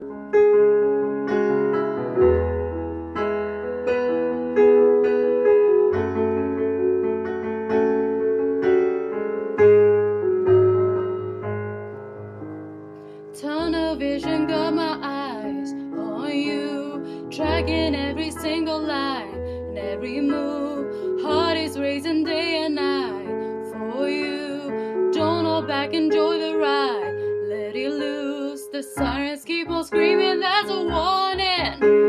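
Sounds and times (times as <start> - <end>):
slow piano chords: 0.0 - 32.0
person singing: 13.4 - 32.0.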